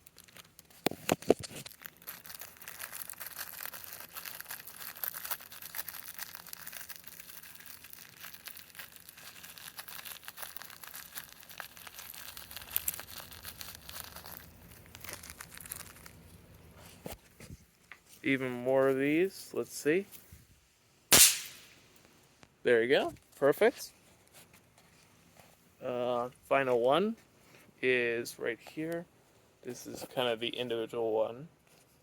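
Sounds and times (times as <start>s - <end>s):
packaging crinkling and rustling: 0.0s - 18.2s.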